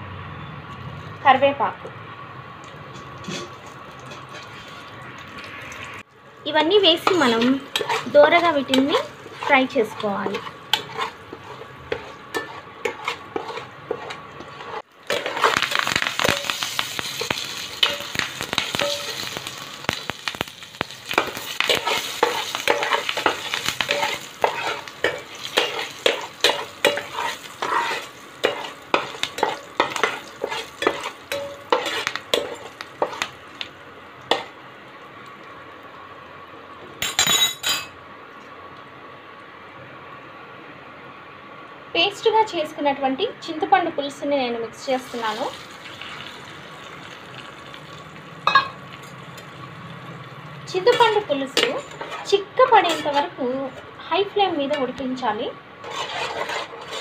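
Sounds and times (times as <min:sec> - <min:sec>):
seeds sizzling in hot oil: 0:02.6 - 0:36.1, 0:44.8 - 0:53.6
spatula stirring in pan: 0:03.0 - 0:05.4, 0:06.8 - 0:33.6, 0:50.8 - 0:53.8, 0:55.8 - 0:57.0.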